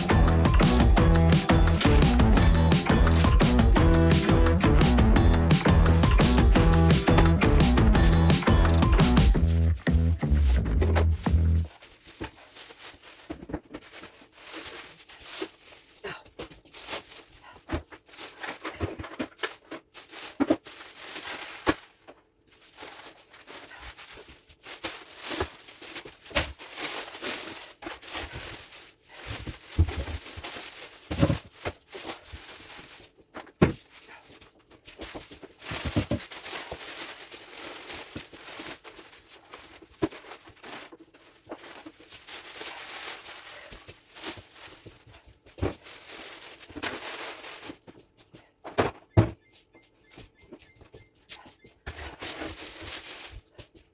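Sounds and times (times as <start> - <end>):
items knocking as set down: 0.0 - 12.4, 31.1 - 31.8, 33.3 - 33.9, 35.7 - 36.3, 48.6 - 49.4
plastic bags crinkling: 5.4 - 48.2, 52.1 - 53.6.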